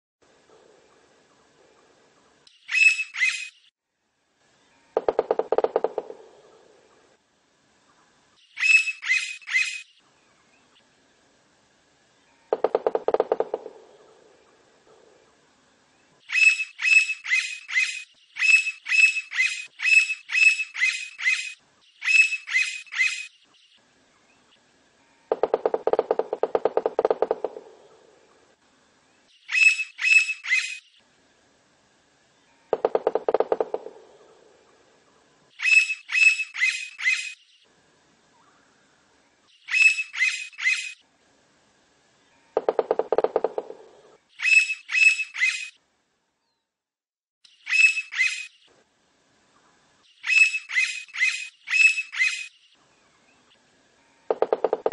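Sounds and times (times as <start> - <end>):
woodpecker ringing calls: 2.6 - 3.6, 4.9 - 6.6, 8.6 - 9.9, 12.5 - 14.1, 16.3 - 23.3, 25.3 - 28.0, 29.5 - 30.8, 32.7 - 34.4, 35.6 - 37.4, 39.6 - 41.0, 42.5 - 45.8, 47.6 - 48.6, 50.2 - 52.6, 54.3 - 54.9
woodpecker drumming on wood: 5.0 - 6.6, 12.5 - 14.1, 25.3 - 28.0, 32.7 - 34.4, 42.6 - 44.1, 54.3 - 54.9.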